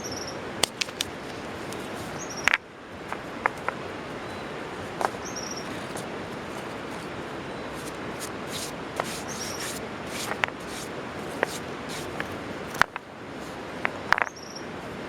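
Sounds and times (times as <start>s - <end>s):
steady outdoor hiss: 0.0s - 15.0s
sharp snaps and clicks: 0.6s - 1.4s.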